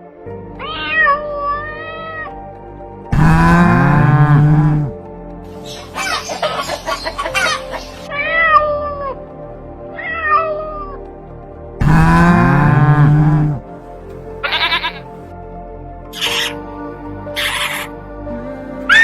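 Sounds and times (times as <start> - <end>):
loud sustained music: 0.0 - 19.0
cat meowing: 0.6 - 2.4, 8.1 - 9.2, 9.9 - 11.0, 14.4 - 15.1.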